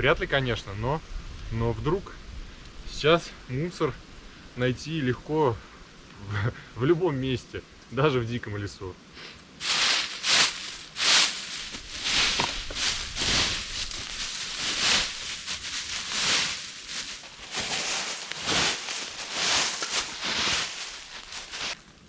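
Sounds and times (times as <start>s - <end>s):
dry leaves and sticks rustling: 9.6s - 22.0s.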